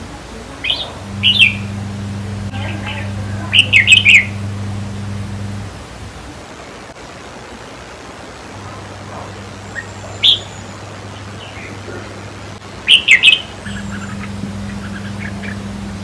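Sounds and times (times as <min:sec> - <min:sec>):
bird calling: 0:00.0 - 0:06.4, 0:09.2 - 0:16.0
steady low hum: 0:00.0 - 0:06.4, 0:13.5 - 0:16.0.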